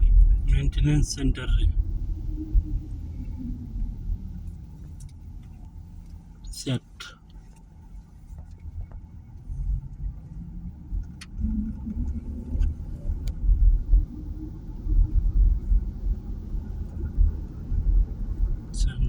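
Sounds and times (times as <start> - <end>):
low rumble of moving vehicle: 0.0 - 19.0.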